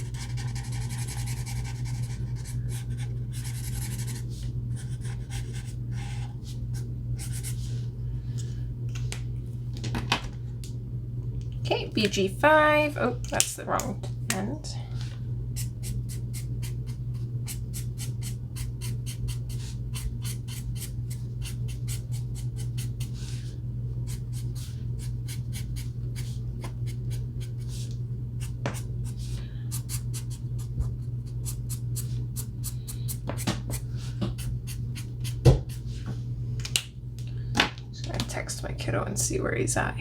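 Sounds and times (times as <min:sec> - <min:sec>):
low hum: 0:00.0 - 0:40.0
marker scratching on paper: 0:00.1 - 0:06.2.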